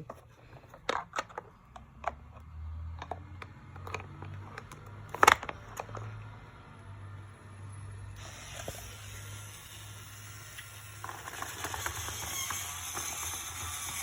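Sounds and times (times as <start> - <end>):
plastic toy parts clicking: 0.1 - 6.1, 10.5 - 14.0.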